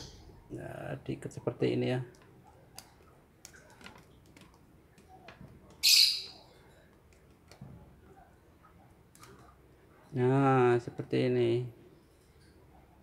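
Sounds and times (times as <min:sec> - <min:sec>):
harsh high-pitched bird call: 0:05.8 - 0:06.4.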